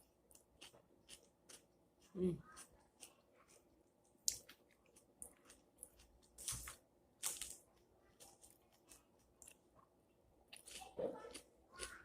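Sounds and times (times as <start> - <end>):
crisp chewing crunches: 10.5 - 12.0.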